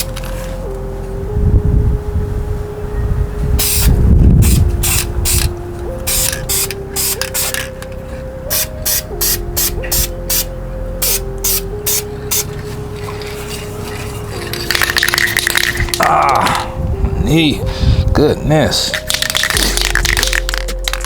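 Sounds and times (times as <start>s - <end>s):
aerosol spray hissing bursts: 3.6s - 5.5s, 6.1s - 7.5s, 8.5s - 12.5s.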